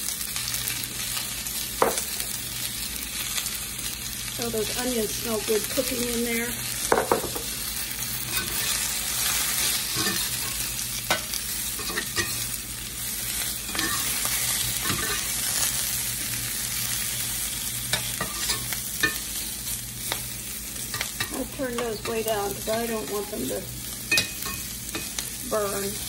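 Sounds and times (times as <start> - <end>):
potatoes and onions sizzling in oil: 0.0 - 26.0
metal spatula scraping a pan: 8.2 - 12.5, 13.3 - 15.7.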